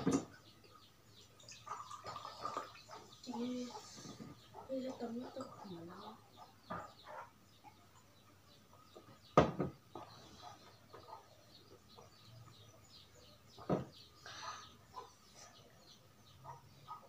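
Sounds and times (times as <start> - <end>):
small birds chirping: 0.0 - 17.0
drinks knocking on a table: 9.4 - 10.1, 13.6 - 14.0.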